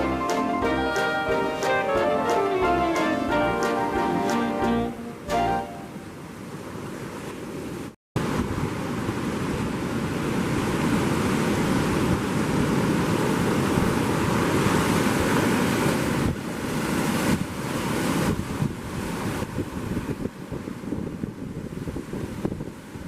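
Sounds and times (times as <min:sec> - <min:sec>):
ocean surf breaking: 0:00.0 - 0:23.0
wind buffeting microphone: 0:08.2 - 0:23.0.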